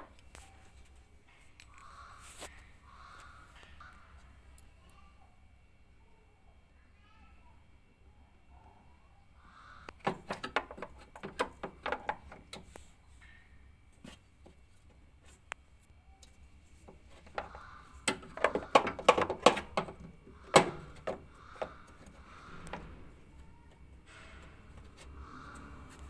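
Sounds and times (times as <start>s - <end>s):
clicks and knocks of parts: 1.3s - 2.0s, 9.9s - 13.4s, 16.2s - 26.0s.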